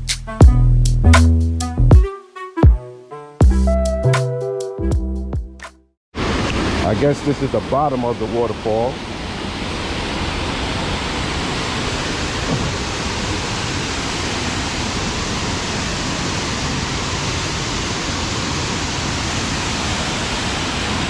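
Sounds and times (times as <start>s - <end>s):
waterfall roaring: 6.2s - 21.0s.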